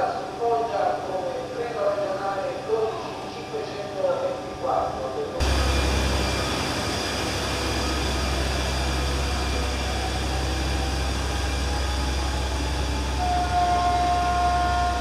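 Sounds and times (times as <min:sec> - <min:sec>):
train engine rumbling: 0:05.4 - 0:15.0.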